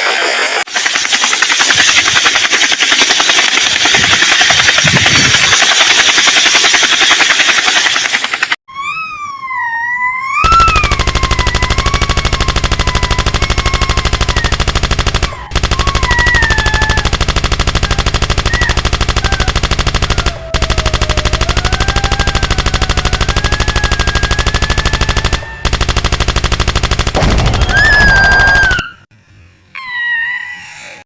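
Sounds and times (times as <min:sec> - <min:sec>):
automatic gunfire: 0:00.7 - 0:08.2, 0:10.4 - 0:29.0
wavering siren-like tone: 0:10.4 - 0:25.7.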